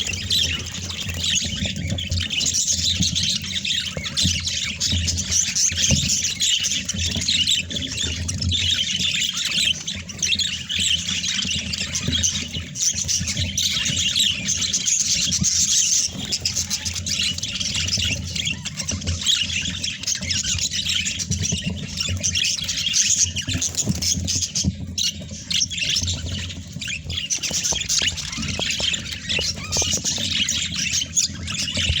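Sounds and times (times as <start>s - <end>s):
budgerigars chattering and squawking: 0.0s - 32.0s.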